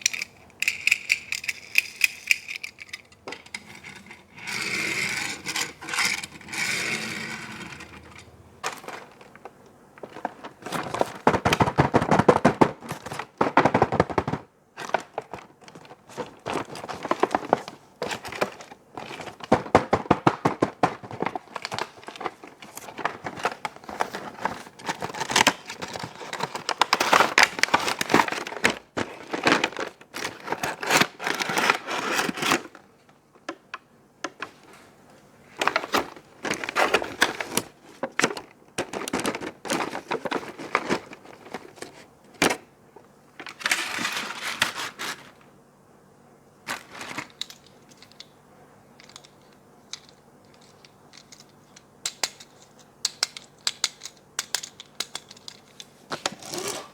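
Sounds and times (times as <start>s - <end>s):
faint steady hum: 0.0s - 56.9s
rustles and taps: 8.1s - 30.7s
packaging crinkling and tearing: 8.7s - 32.8s.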